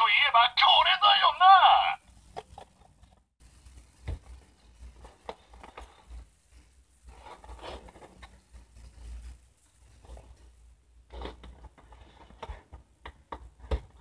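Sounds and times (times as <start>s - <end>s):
box rustling and scraping: 7.0s - 10.5s.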